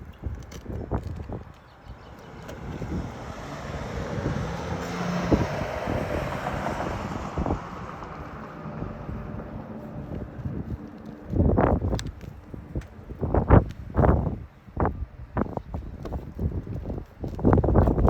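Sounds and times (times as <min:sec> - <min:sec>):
vehicle passing by: 0:01.9 - 0:11.8.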